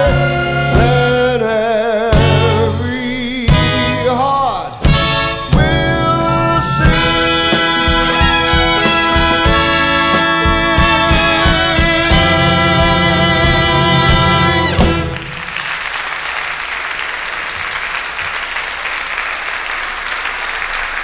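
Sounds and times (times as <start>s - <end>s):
orchestra with brass holding chord: 4.8s - 15.6s
audience applause: 12.8s - 21.0s.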